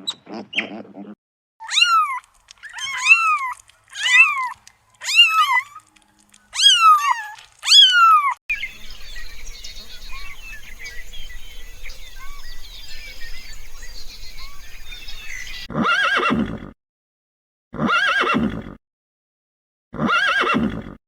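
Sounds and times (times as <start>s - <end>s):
kitten meowing: 1.6s - 5.7s
faint chirps: 8.5s - 15.7s.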